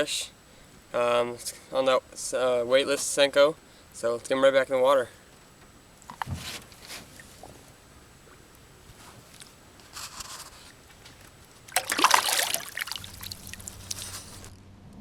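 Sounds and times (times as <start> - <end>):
water splashing beside boat: 6.0 - 9.8, 10.5 - 14.5.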